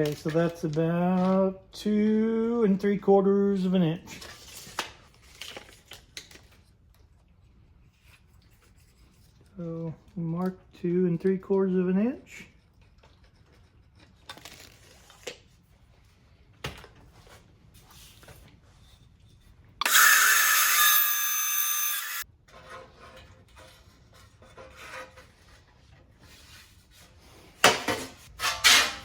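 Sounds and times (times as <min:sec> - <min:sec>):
power saw cutting wood: 0:19.8 - 0:22.2.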